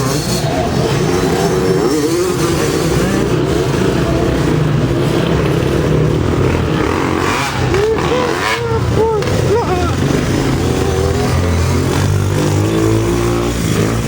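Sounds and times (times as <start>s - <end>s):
racing motorcycle engines: 0.0s - 14.0s.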